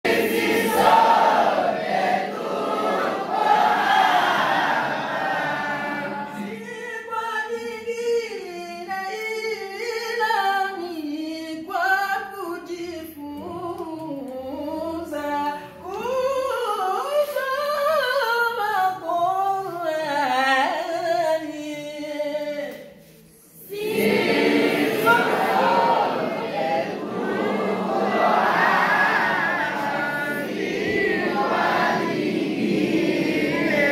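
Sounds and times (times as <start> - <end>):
group of voices chanting: 0.0 - 6.4, 23.7 - 33.9
person chanting recitation: 23.7 - 33.9.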